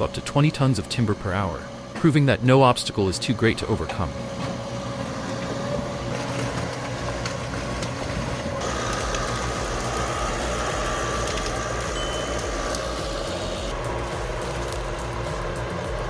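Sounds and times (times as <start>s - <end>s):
diesel engine running: 0.0s - 16.0s
high steady whine: 5.2s - 16.0s.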